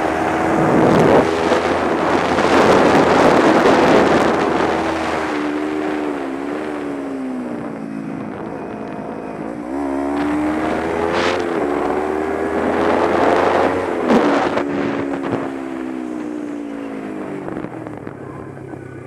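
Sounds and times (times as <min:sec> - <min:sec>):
wind on microphone: 0:00.0 - 0:18.5
motorcycle engine revving: 0:00.0 - 0:19.0.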